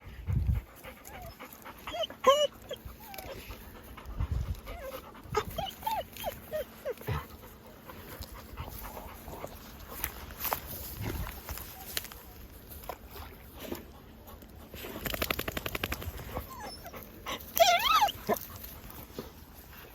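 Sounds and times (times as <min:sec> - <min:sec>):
dogs whining and yelping: 0:00.8 - 0:09.5, 0:16.1 - 0:18.8.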